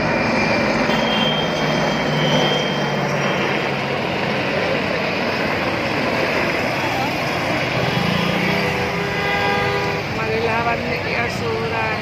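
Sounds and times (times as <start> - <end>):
jet engine roar: 0.0 - 12.0
faint high whine: 0.6 - 4.1.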